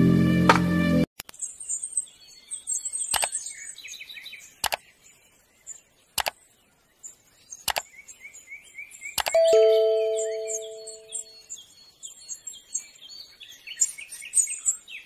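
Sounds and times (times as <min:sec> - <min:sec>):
high bird chirps: 0:01.3 - 0:05.1, 0:07.0 - 0:15.0
mouse clicks: 0:03.1 - 0:03.4, 0:04.6 - 0:04.8, 0:06.2 - 0:06.4, 0:07.6 - 0:07.9, 0:09.2 - 0:09.4.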